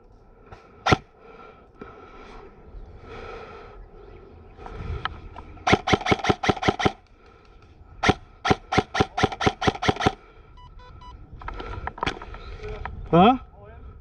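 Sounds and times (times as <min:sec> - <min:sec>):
airsoft rifle shots: 0:00.8 - 0:01.1, 0:05.7 - 0:07.0, 0:08.0 - 0:10.2.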